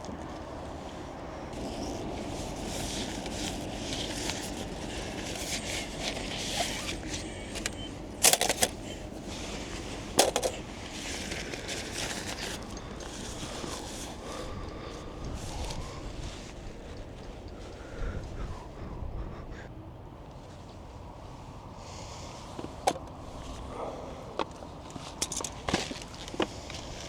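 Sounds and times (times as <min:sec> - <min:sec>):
wind buffeting microphone: 0:12.2 - 0:20.0.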